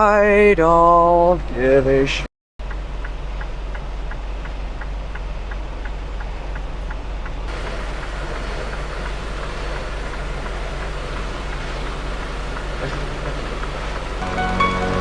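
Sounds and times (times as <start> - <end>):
diesel engine low hum: 2.6 - 15.0
faint regular ticking: 2.6 - 15.0
loud hiss: 7.5 - 15.0.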